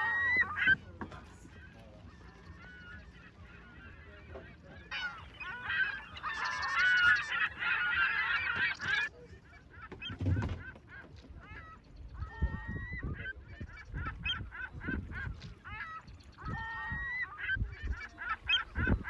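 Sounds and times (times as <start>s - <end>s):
geese honking: 0.0s - 19.0s.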